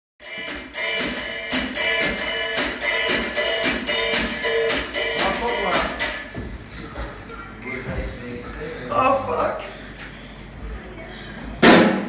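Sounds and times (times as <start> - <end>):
drum kit steady beat: 0.2 - 6.8.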